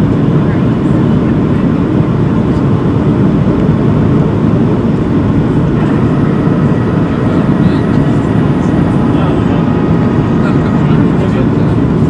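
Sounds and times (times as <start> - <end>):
jet engine roar in cabin: 0.0 - 12.0
faint high whine: 4.7 - 12.0.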